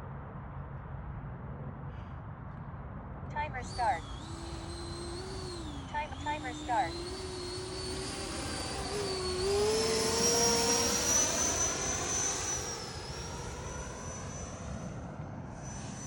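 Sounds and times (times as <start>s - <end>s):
model jet fan whine: 3.3s - 16.0s.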